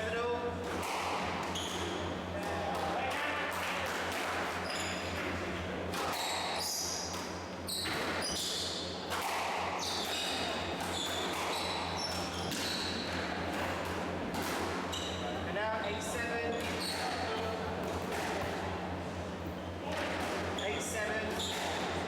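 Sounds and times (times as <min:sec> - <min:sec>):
steady low hum: 0:00.0 - 0:22.0
shoes squeaking on court floor: 0:00.8 - 0:02.1, 0:04.6 - 0:05.3, 0:06.0 - 0:07.1, 0:07.7 - 0:08.9, 0:09.8 - 0:13.7, 0:14.8 - 0:15.4, 0:16.5 - 0:17.6, 0:19.5 - 0:22.0.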